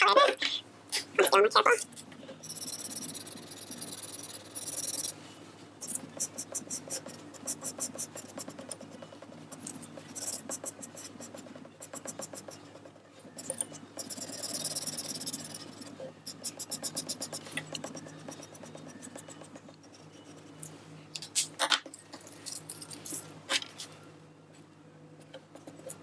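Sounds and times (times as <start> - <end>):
tool scratching on paper: 2.4 - 5.2, 5.8 - 20.8, 25.3 - 26.0.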